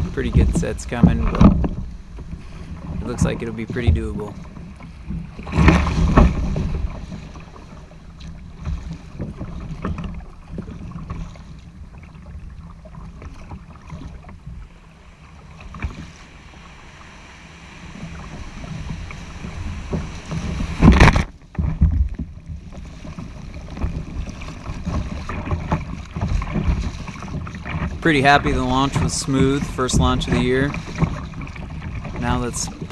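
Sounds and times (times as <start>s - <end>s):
water splashing: 0.0s - 32.9s
waves: 0.0s - 32.9s
wind buffeting microphone: 0.0s - 32.9s
loud burst of noise: 14.5s - 21.8s.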